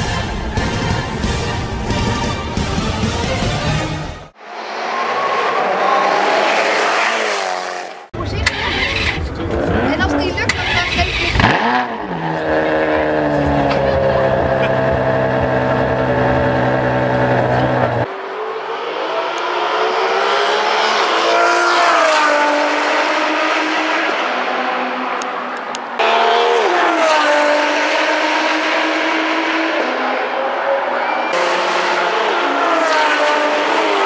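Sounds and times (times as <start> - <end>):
car accelerating past: 4.4 - 25.2
car engine idling: 12.6 - 18.0.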